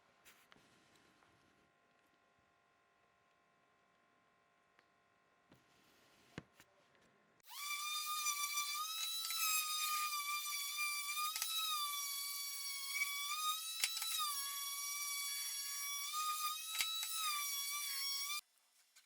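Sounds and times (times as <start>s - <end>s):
wood lathe motor whine: 7.5s - 18.4s.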